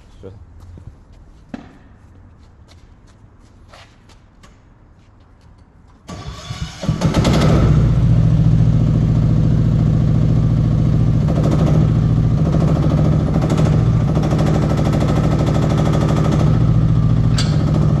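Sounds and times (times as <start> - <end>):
diesel engine running: 6.1 - 18.0.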